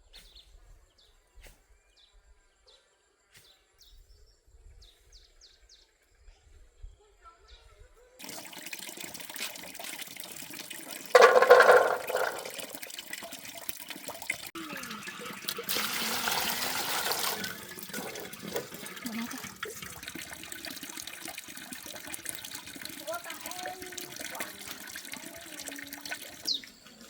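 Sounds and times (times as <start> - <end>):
water running and splashing: 8.2 - 27.0.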